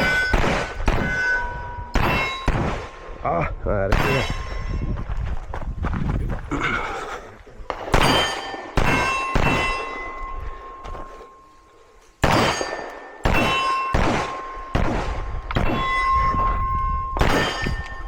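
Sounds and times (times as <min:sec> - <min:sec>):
metal plate ringing: 0:00.0 - 0:02.7, 0:08.0 - 0:14.8, 0:15.5 - 0:18.0
pistol shots: 0:00.0 - 0:03.2, 0:07.7 - 0:10.2, 0:12.2 - 0:16.3, 0:17.2 - 0:18.0.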